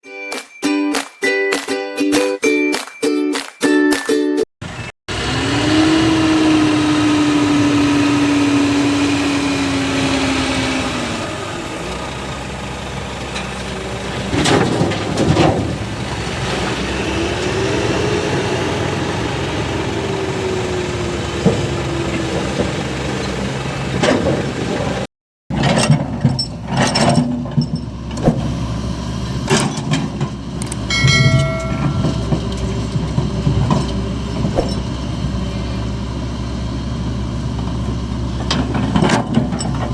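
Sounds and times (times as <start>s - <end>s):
diesel earthmoving machinery: 4.6s - 39.9s
machinery whine: 30.6s - 37.8s.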